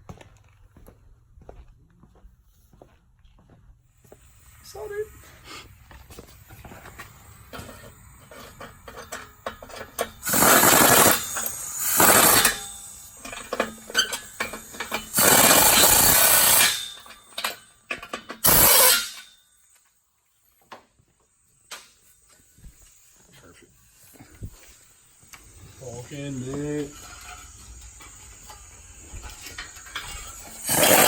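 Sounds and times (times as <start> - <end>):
power tool cutting exhaust pipe: 4.4 - 19.3, 25.2 - 31.0
metal clanks and knocks: 12.3 - 15.2, 16.5 - 19.4.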